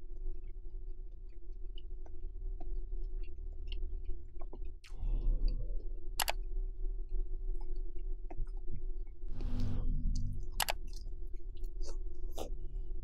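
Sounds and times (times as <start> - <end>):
wet mouth clicks and chewing: 0.0 - 5.0, 7.1 - 9.3, 10.6 - 13.0.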